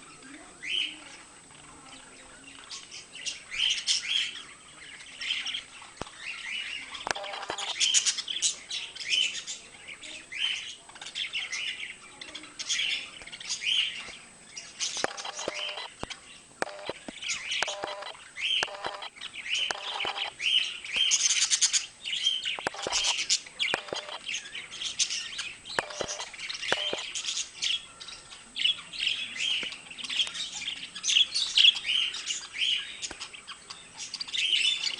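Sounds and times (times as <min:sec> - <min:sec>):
budgerigars chattering: 0:14.7 - 0:34.9.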